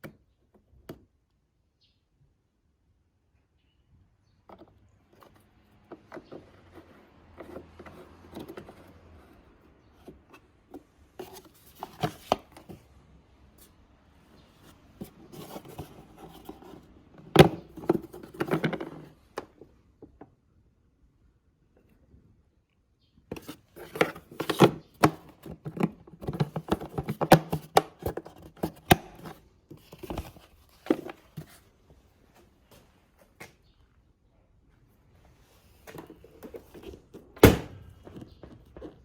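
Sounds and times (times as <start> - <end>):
objects handled by hand: 4.4 - 20.3, 23.3 - 33.7, 35.2 - 39.0.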